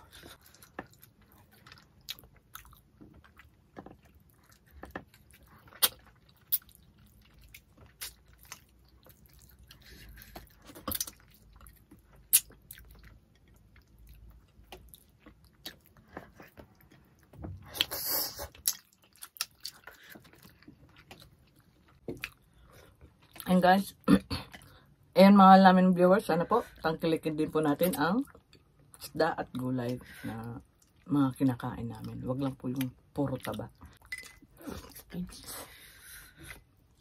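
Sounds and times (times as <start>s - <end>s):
person chewing: 0.0s - 23.5s.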